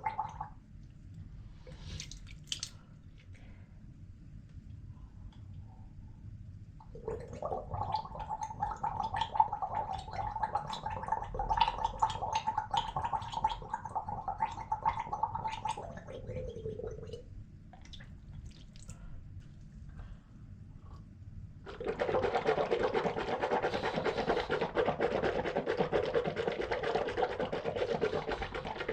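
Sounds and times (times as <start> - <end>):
person gargling water: 0.0 - 0.6, 6.8 - 17.2, 21.7 - 28.9
small wet clicks: 1.9 - 3.5, 17.7 - 20.1.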